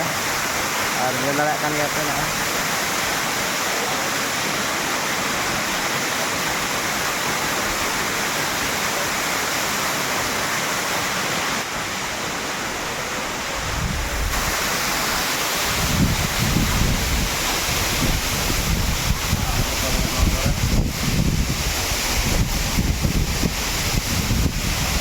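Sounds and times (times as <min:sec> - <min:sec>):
waterfall rushing: 0:00.0 - 0:25.0
wind buffeting microphone: 0:12.8 - 0:25.0.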